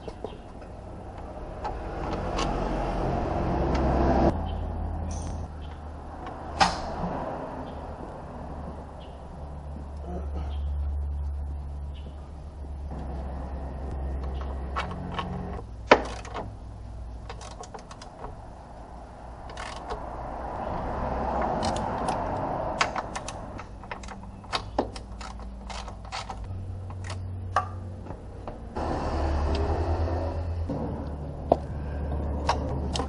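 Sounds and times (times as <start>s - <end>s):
metallic clicks and knocks of tools: 17.2s - 18.4s, 19.4s - 20.1s, 21.4s - 28.6s.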